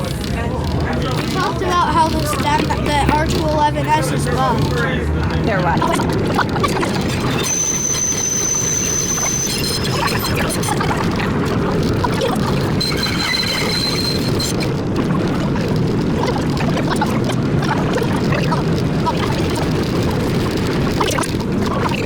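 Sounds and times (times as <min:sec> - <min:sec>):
wheels rumbling on rail: 0:00.0 - 0:22.0
high wheel squeal: 0:06.9 - 0:10.9, 0:12.7 - 0:14.7.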